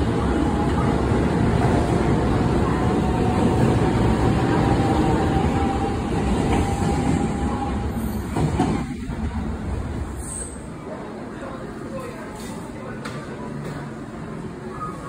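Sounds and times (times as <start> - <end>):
train rolling rumble: 0.0 - 11.3.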